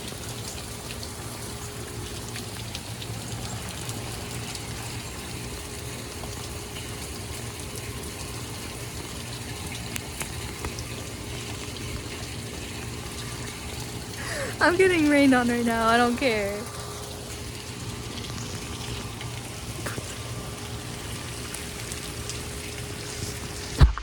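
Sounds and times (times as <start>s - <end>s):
raindrops ticking close: 0.0s - 23.8s
rain hiss: 0.0s - 23.9s.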